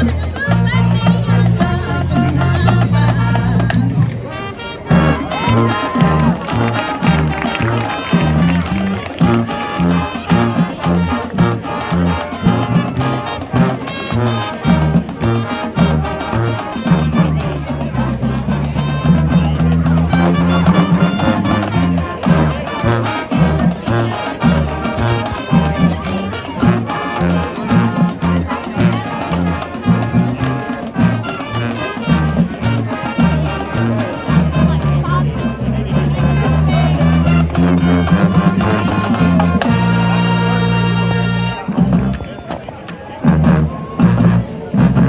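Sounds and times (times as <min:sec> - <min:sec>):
bass line: 0:00.0 - 0:42.3, 0:43.2 - 0:45.0
brass: 0:00.0 - 0:45.0
drums: 0:00.0 - 0:45.0
marching band playing: 0:00.0 - 0:45.0.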